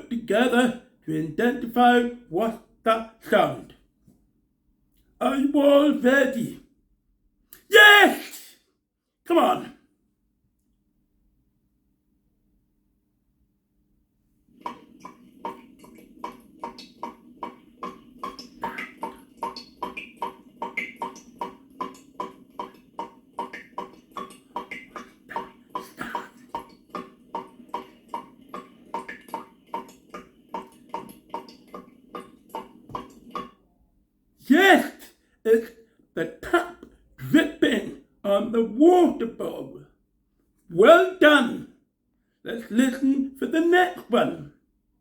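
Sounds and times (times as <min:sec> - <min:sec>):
water dripping into bowl: 0:14.6 - 0:33.7.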